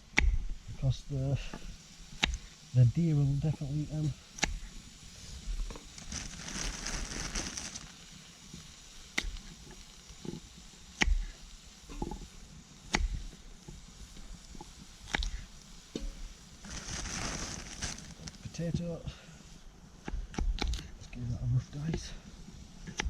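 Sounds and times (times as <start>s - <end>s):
rustling: 4.4s - 8.2s, 16.1s - 18.6s.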